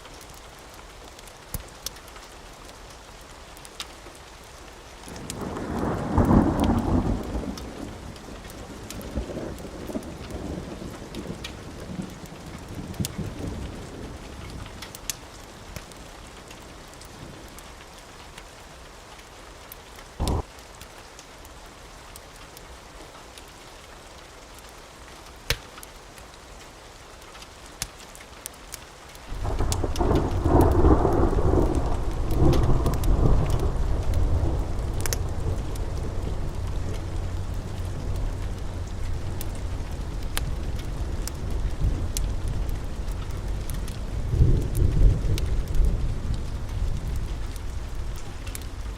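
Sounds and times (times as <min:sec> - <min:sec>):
steady rain: 0:00.0 - 0:48.9
thunder rumbling: 0:05.1 - 0:14.9, 0:20.2 - 0:20.5, 0:29.3 - 0:48.9.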